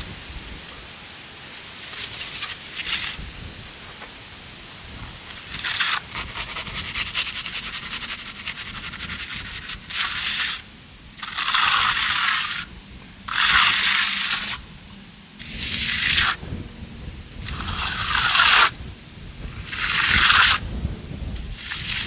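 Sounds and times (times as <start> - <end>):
trowel scraping concrete: 1.8 - 3.3, 5.3 - 14.7, 15.4 - 16.4, 17.4 - 18.8, 19.5 - 20.7, 21.4 - 22.0.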